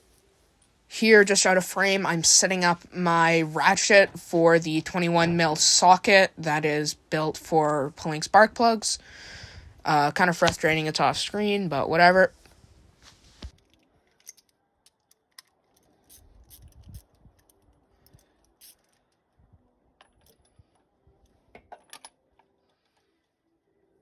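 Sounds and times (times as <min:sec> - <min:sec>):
metallic clicks of ratchet and socket: 0:13.6 - 0:19.1.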